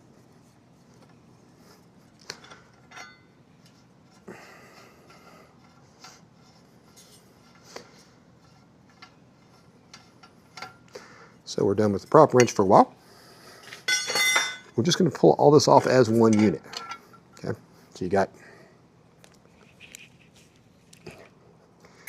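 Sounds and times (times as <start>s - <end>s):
metal clinks and knocks: 2.4s - 3.3s, 13.6s - 14.8s.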